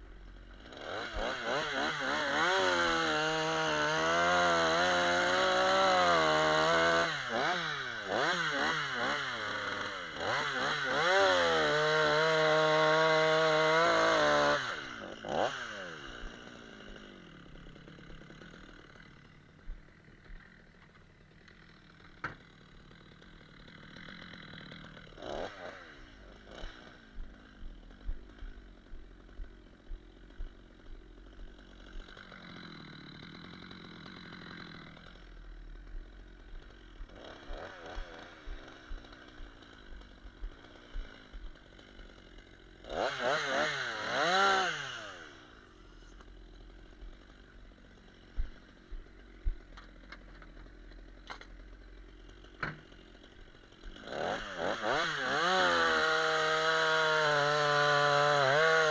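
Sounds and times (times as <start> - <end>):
chainsaw idling and revving: 0.0 - 58.9.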